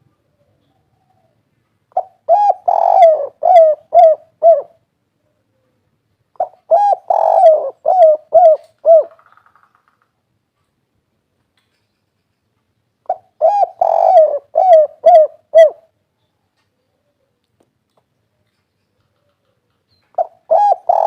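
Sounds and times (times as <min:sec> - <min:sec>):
dove cooing: 0:00.3 - 0:04.8, 0:06.4 - 0:09.3, 0:13.1 - 0:15.9, 0:19.1 - 0:21.0.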